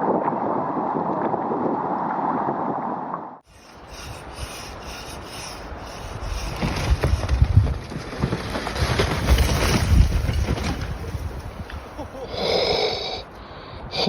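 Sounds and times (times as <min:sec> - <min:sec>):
wind buffeting microphone: 0:03.5 - 0:12.4.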